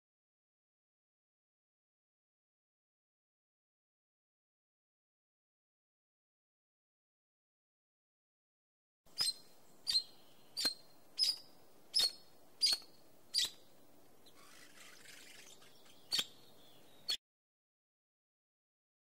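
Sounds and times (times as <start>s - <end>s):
bird chirping: 9.1s - 17.2s
faint outdoor background: 9.1s - 17.2s.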